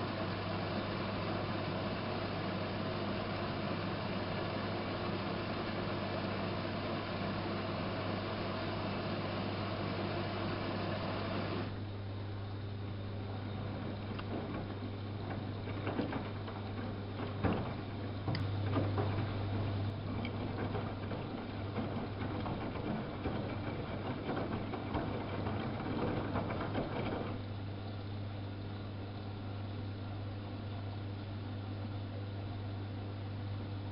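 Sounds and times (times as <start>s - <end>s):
washing machine humming: 0.0s - 33.9s
small knocks: 13.9s - 27.4s.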